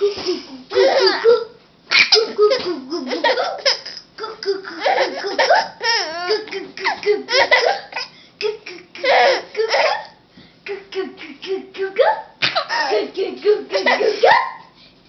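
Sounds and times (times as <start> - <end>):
high-pitched laughter: 12.6 - 13.1, 13.7 - 14.6.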